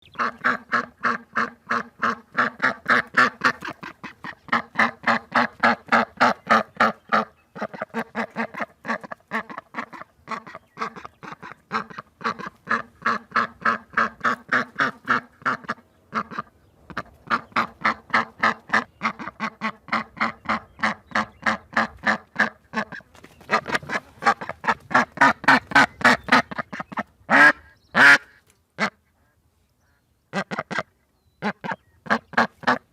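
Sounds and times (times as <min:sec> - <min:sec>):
duck quacking: 0:00.0 - 0:32.9.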